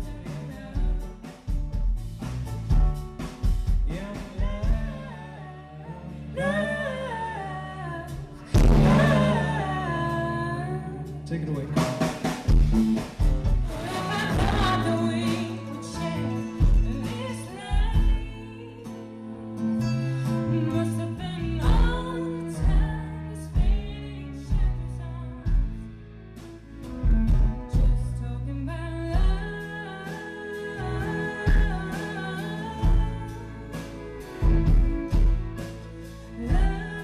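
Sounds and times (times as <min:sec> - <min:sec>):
low bass notes: 0:00.0 - 0:37.0
drum beat: 0:00.8 - 0:05.0, 0:08.6 - 0:09.4, 0:11.6 - 0:18.4
person singing: 0:03.8 - 0:11.9, 0:13.7 - 0:19.2, 0:27.5 - 0:34.5, 0:36.4 - 0:37.0.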